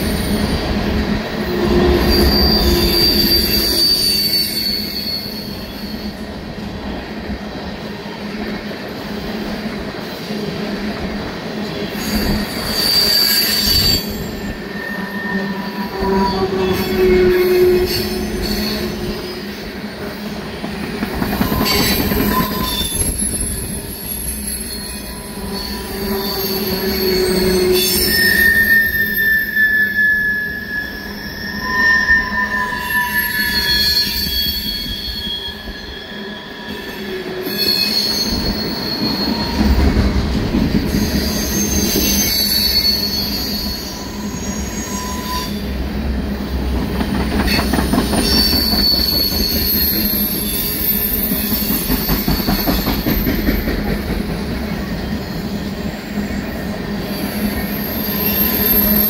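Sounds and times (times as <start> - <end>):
freight train wheels rumbling: 0.0 - 29.7, 30.5 - 59.0
wheels squealing: 1.6 - 6.2, 21.2 - 40.0, 40.8 - 45.8, 46.4 - 53.9, 57.1 - 59.0.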